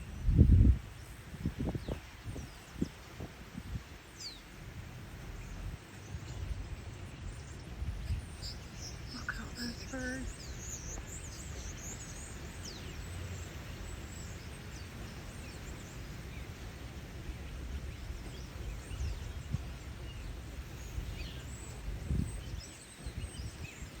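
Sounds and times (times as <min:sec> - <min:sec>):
steady low rumble: 0:00.0 - 0:23.8
faint high bird chirps: 0:05.4 - 0:13.1.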